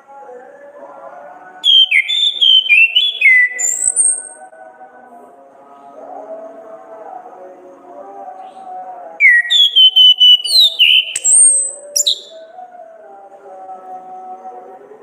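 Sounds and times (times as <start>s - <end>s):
thrush whistling song: 1.6s - 4.4s, 9.2s - 12.4s.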